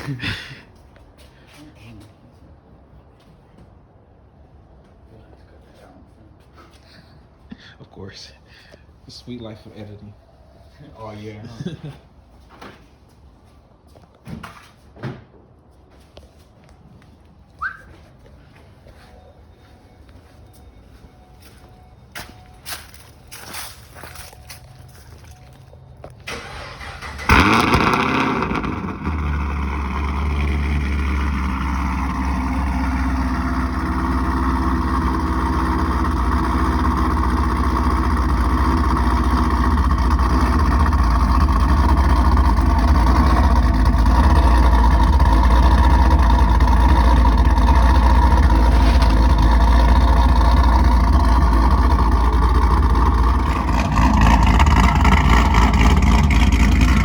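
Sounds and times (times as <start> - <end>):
car engine starting and idling: 21.4 - 57.0.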